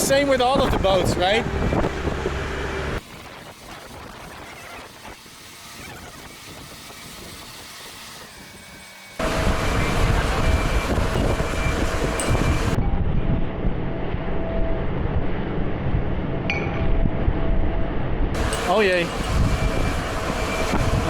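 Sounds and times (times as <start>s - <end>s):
crane engine running: 0.0s - 12.8s, 18.4s - 21.0s
faint whine: 9.2s - 15.9s, 17.9s - 21.0s.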